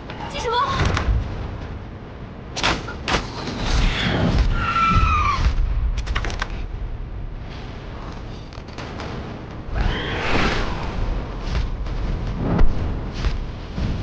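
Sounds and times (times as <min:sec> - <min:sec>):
rushing over low rumble: 0:03.7 - 0:14.0.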